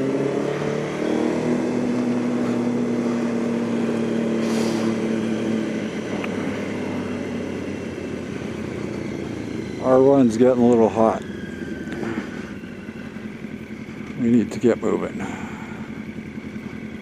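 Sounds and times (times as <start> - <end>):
motorcycle engine running: 0.0 - 17.0
road noise: 0.0 - 17.0.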